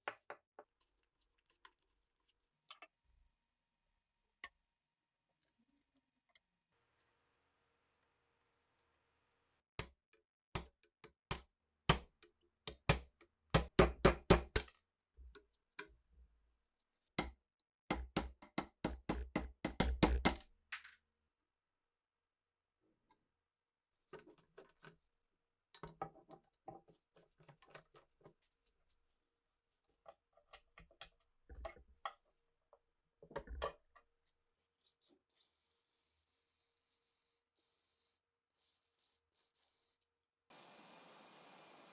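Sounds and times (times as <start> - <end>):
small parts clicking and tapping: 10.6 - 15.9
hand tool tapping workpiece: 12.7 - 14.7, 17.2 - 20.4.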